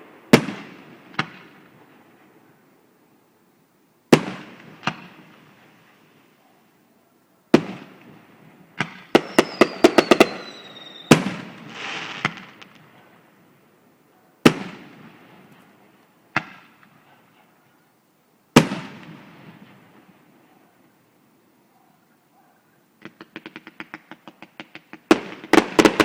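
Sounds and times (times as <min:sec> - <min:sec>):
fireworks exploding: 0:00.0 - 0:02.5, 0:04.1 - 0:06.4, 0:07.5 - 0:13.4, 0:14.4 - 0:17.6, 0:18.5 - 0:20.6, 0:23.0 - 0:26.0
crackling hiss: 0:00.0 - 0:26.0
falling whistle: 0:09.2 - 0:11.2.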